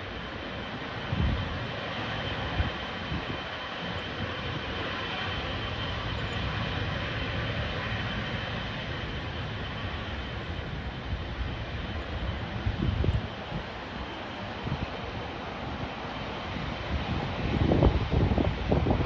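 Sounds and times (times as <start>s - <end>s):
jet engines at takeoff power: 0.0s - 19.0s.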